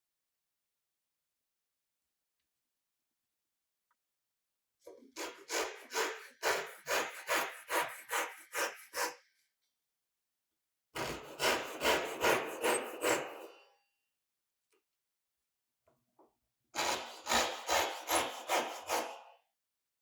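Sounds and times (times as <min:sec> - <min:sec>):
handsaw cutting wood: 0:05.1 - 0:09.2, 0:11.0 - 0:13.6, 0:16.8 - 0:19.3.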